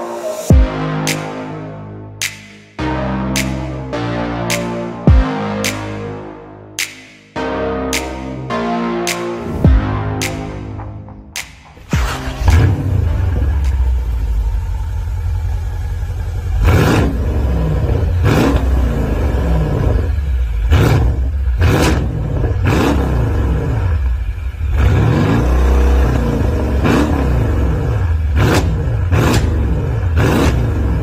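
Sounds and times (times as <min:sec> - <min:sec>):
car engine revving: 0:09.1 - 0:31.0
exhaust cracks: 0:09.8 - 0:31.0.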